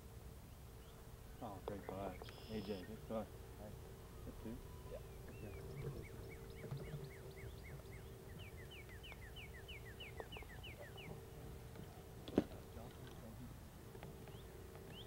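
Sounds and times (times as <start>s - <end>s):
faint steady hum: 0.0s - 15.0s
songbird singing whistled notes: 0.5s - 3.0s, 4.8s - 11.2s, 14.2s - 15.0s.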